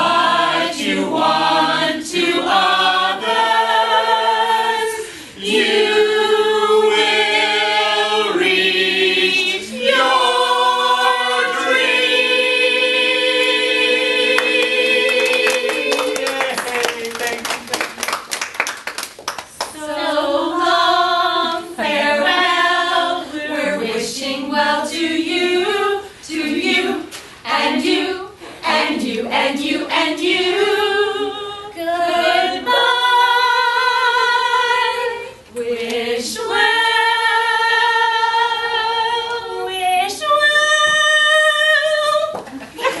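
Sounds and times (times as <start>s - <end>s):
women singing unaccompanied: 19.7s - 42.4s.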